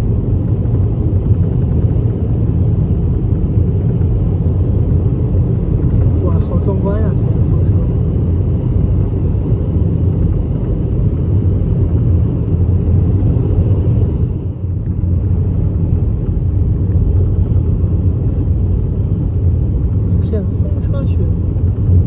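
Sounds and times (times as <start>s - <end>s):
car interior road rumble: 0.0s - 22.0s.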